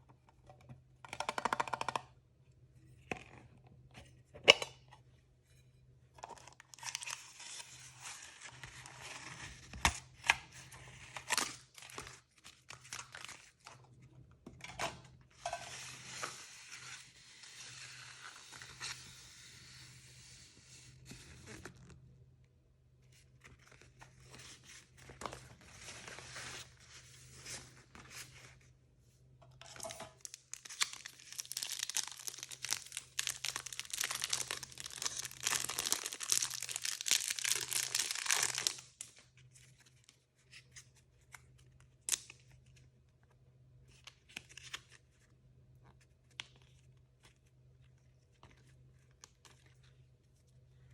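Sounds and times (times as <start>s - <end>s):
plastic packaging tearing and crinkling: 30.2s - 39.1s.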